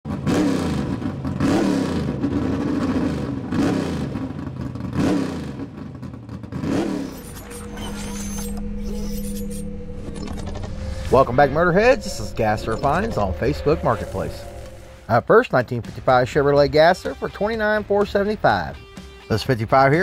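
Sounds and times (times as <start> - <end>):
car engine revving: 0.1 - 15.1
steady low hum: 7.0 - 15.1.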